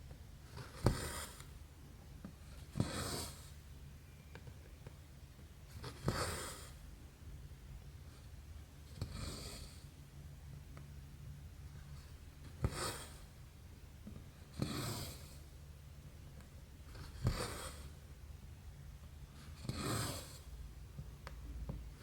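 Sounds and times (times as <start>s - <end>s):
needle and thread through canvas: 0.4s - 1.6s.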